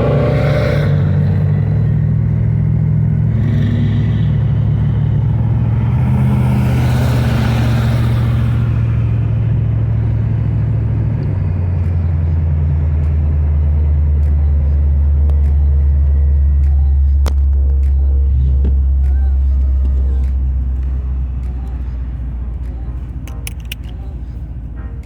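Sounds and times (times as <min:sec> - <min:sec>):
rush of noise: 0:00.0 - 0:09.2
car engine droning: 0:00.0 - 0:25.0.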